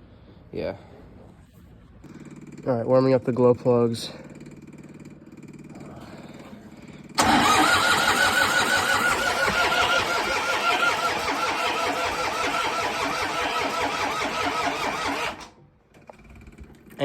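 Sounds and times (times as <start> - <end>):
diesel engine cranking: 6.4 - 17.0.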